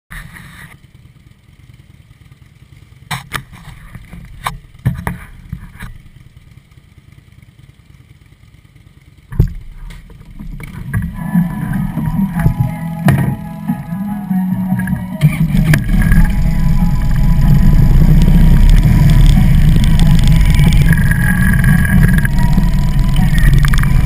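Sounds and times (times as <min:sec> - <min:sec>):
motorcycle engines idling: 0:00.1 - 0:24.0
sharp clicks and knocks: 0:09.3 - 0:11.2.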